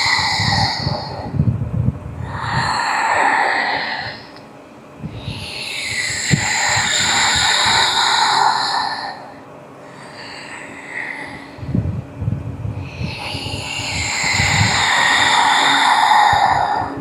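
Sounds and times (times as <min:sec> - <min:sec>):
hissing breaths through nose: 0:00.0 - 0:01.5, 0:02.2 - 0:04.4, 0:05.0 - 0:17.0.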